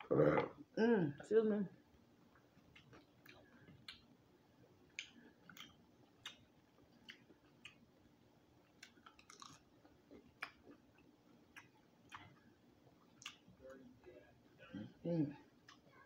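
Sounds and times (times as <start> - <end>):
person chewing food: 2.3 - 8.0, 8.6 - 13.6
mouth clicks and smacks: 4.9 - 7.8.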